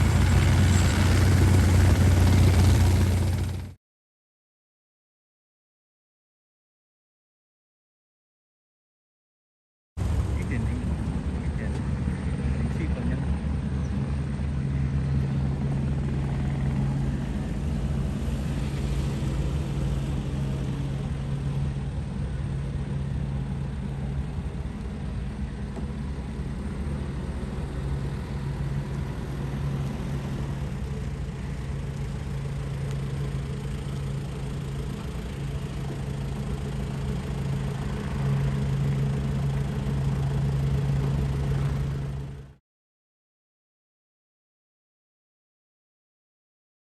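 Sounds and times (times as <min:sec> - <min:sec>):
helicopter turbine and rotors: 0:00.0 - 0:03.8, 0:10.0 - 0:42.6.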